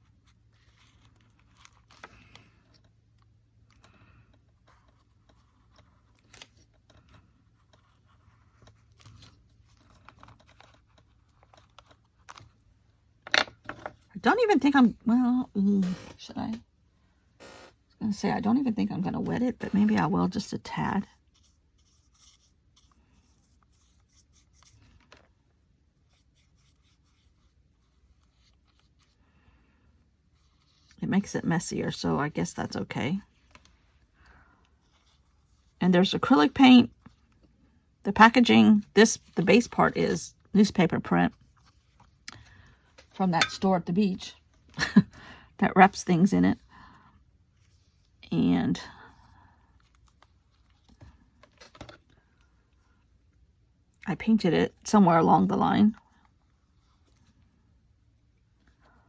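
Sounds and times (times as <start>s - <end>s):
colour stick scratching on paper: 21.1s - 24.9s, 26.0s - 29.2s.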